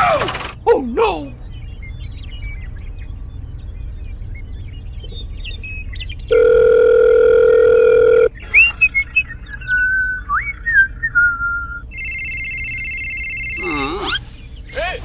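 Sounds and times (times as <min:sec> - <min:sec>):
loud steady tone: 0:11.8 - 0:14.2
high-pitched tone: 0:11.9 - 0:14.2.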